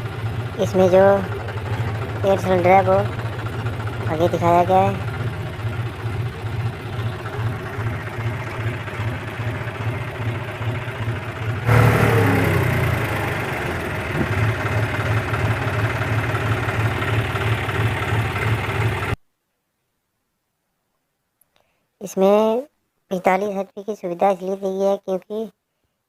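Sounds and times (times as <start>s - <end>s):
diesel engine idling: 0.0s - 19.2s.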